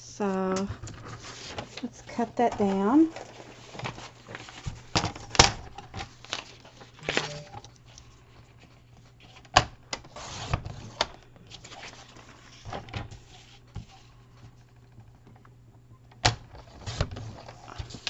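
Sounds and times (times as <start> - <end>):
paper rustling: 0.8 - 9.4, 10.1 - 14.2.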